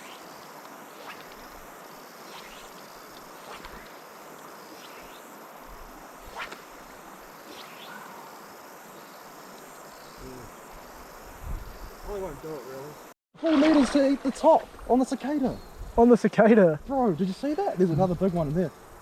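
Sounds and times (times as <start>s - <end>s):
cicadas buzzing: 0.0s - 19.0s.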